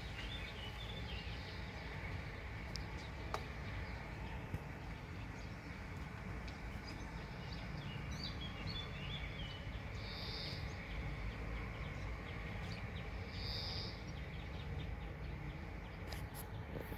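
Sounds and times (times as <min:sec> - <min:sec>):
outdoor background hiss: 0:00.0 - 0:16.9
faint bird chirps: 0:08.2 - 0:11.0, 0:12.8 - 0:14.1.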